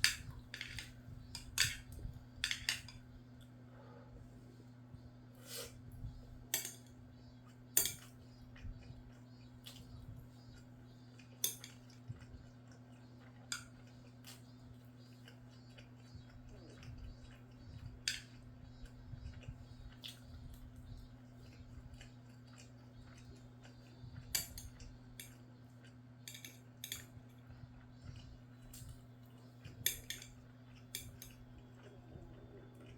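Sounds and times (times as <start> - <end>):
utensils clinking against bowl: 0.0 - 3.0, 6.5 - 7.0, 7.7 - 8.2, 11.3 - 12.3, 24.2 - 25.4, 26.2 - 27.4, 29.7 - 31.8
steady low hum: 0.0 - 32.9.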